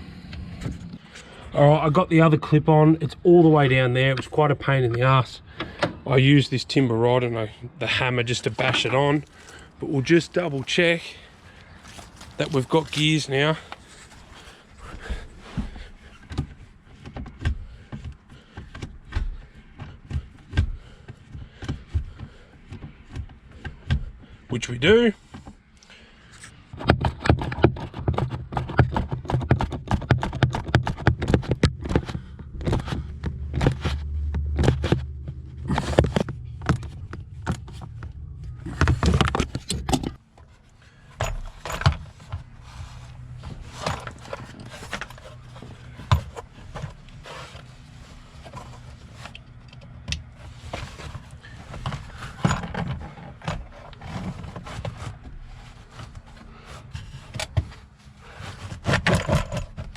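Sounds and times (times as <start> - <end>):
hand tools clicking and scraping on trim: 10.4 - 59.9
steady low hum: 31.6 - 58.8.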